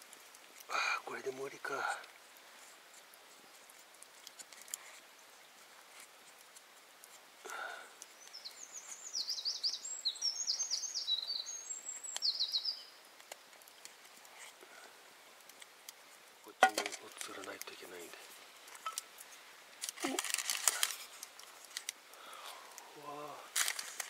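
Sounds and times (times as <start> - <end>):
low outdoor background: 0.0 - 24.0
songbird twittering song: 7.6 - 13.9.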